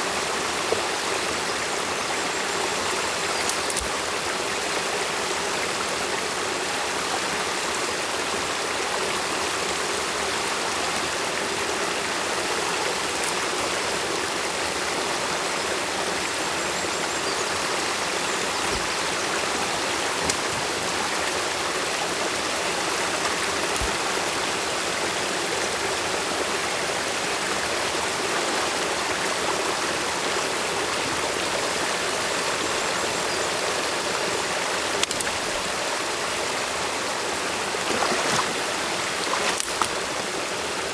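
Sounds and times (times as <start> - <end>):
stream water rushing: 0.0 - 40.9
faint ticks: 35.0 - 35.4.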